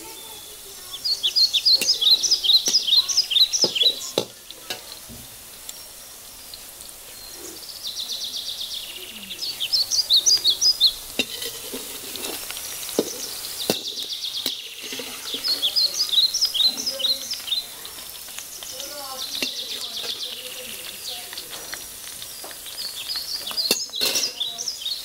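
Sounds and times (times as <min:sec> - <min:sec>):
birds chirping: 0:00.0 - 0:25.0
okra sizzling in hot oil: 0:00.0 - 0:25.0
steel spatula clinking on pan: 0:23.7 - 0:24.4.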